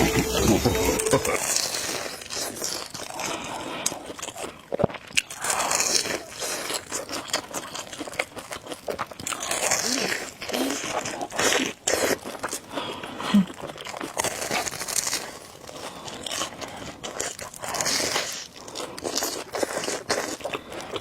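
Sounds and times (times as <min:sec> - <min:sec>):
person biting and chewing food: 0:13.5 - 0:21.0.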